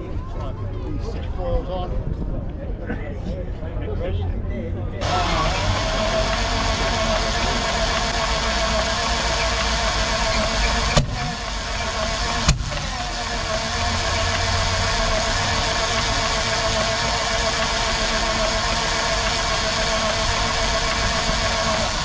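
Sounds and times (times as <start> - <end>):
sharp engine bangs: 5.0 - 17.1
engine turning over: 5.0 - 22.0.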